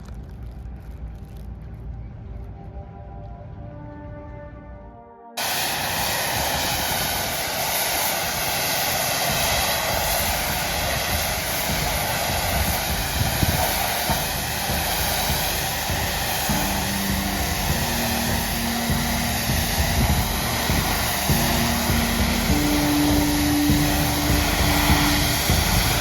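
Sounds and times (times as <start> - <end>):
loud steady rushing hiss: 5.4 - 26.0
low steady hum: 5.4 - 26.0.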